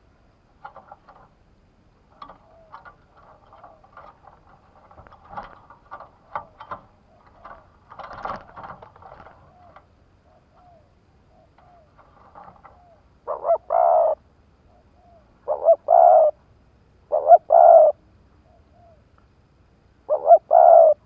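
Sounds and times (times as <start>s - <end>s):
clicks taps and rustles: 0.5s - 10.0s, 11.5s - 12.9s
doves cooing: 2.1s - 16.4s, 17.1s - 19.0s, 20.0s - 21.0s.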